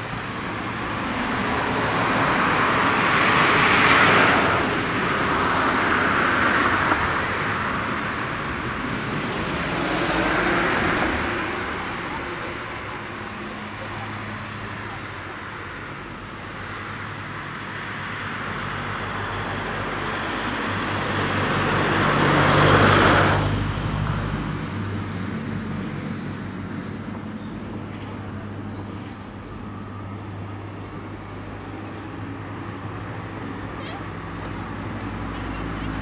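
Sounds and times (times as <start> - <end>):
car passing by: 0.0 - 15.9, 16.5 - 28.7.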